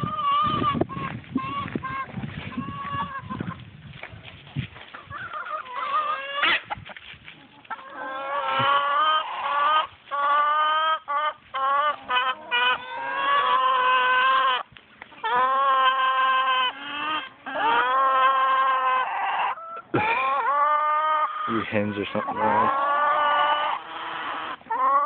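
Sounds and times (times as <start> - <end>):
chickens squawking: 0.0 - 3.7, 4.9 - 25.0.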